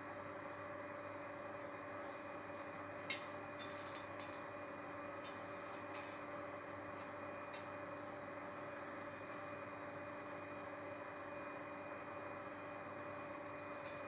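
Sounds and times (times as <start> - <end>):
faint background hum: 0.0 - 14.0.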